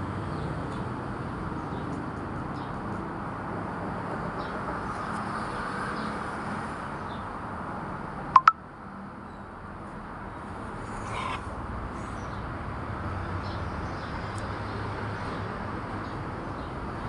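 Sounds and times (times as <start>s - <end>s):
faint high chirps: 8.4s - 8.6s.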